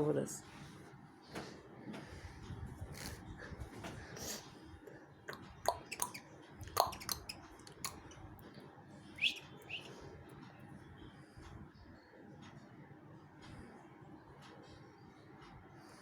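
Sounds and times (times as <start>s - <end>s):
bird chirps and clicks: 5.3s - 8.6s, 9.2s - 10.0s.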